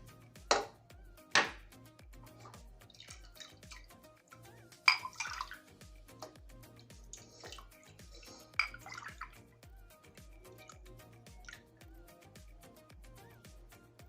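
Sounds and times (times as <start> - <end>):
background music with beat: 0.0 - 14.0
liquid pouring and splashing: 2.2 - 4.1, 4.8 - 9.5, 10.4 - 11.7
cup clinking: 4.9 - 5.6, 8.2 - 9.3.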